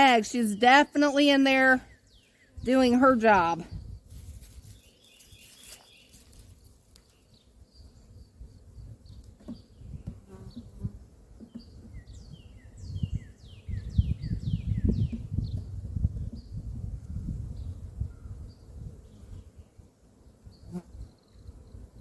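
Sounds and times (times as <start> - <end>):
honeybees buzzing: 0.0 - 22.0
bird chirping: 4.6 - 10.8, 11.4 - 16.6.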